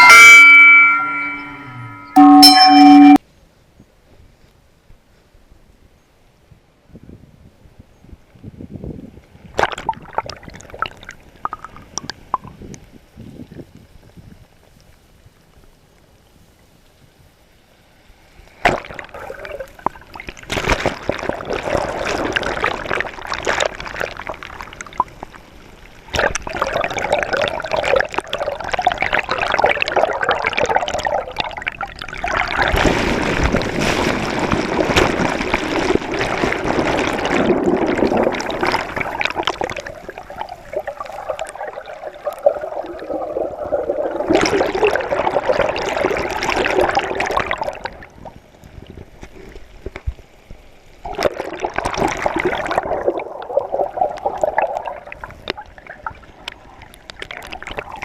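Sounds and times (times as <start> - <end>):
water splashing and trickling: 0.0 - 3.2, 18.0 - 58.0.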